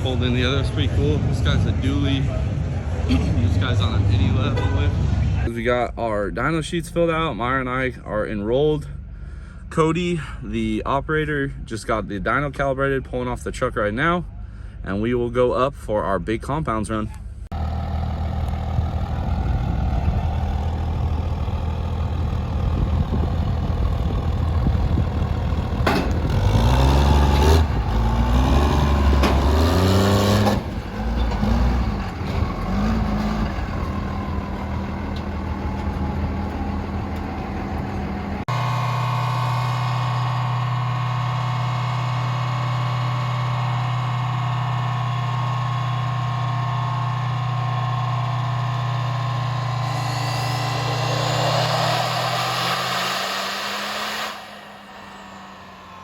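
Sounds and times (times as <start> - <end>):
diesel truck engine revving: 17.5 - 56.0
even engine drone: 17.5 - 56.0.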